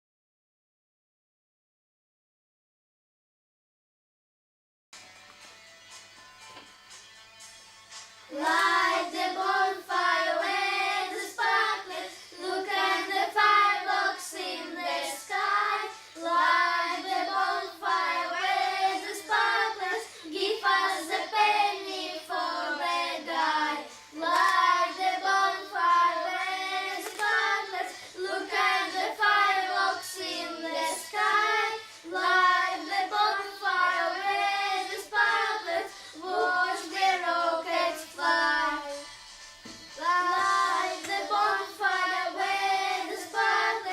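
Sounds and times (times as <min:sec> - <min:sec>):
children singing together: 0:08.3 - 0:39.1, 0:40.0 - 0:43.9.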